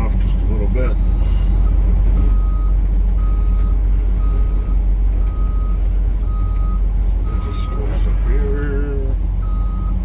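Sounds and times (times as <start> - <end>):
diesel engine running: 0.0 - 10.0
backup alarm beeping: 2.3 - 7.9.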